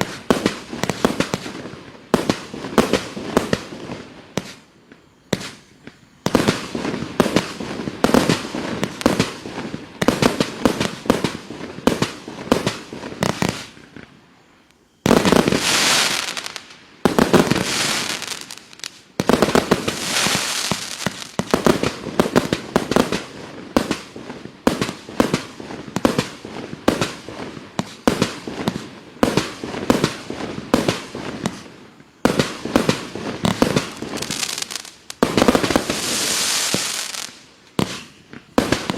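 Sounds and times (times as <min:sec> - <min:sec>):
loud firework bursts: 0:00.0 - 0:38.9
firework cake firing shots: 0:37.8 - 0:38.9.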